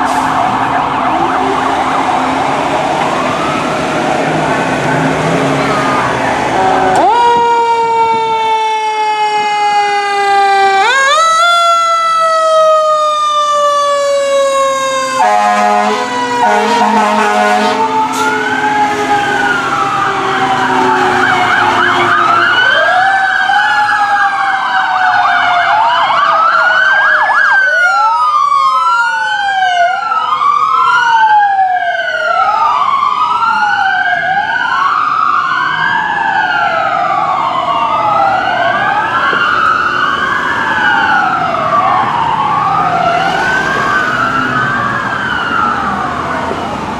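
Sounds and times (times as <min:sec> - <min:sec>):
sirens wailing: 0:00.0 - 0:46.9
horn blasts: 0:06.5 - 0:07.2, 0:15.2 - 0:19.4.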